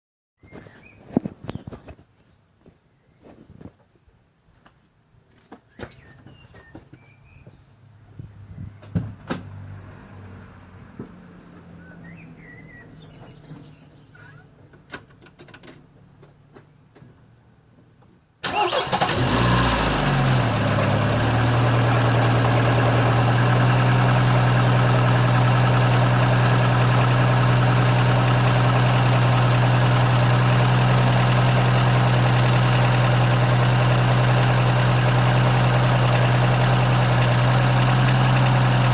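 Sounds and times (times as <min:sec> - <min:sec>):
car engine starting and idling: 0:18.4 - 0:38.9.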